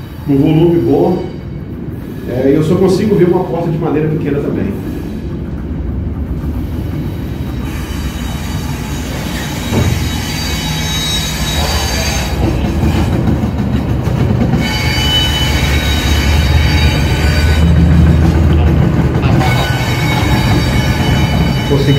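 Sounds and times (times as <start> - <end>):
train rumbling past: 0.0 - 21.9
high-pitched wheel squeal: 6.6 - 13.2, 14.6 - 18.5, 19.2 - 21.9
thump: 9.7 - 10.2.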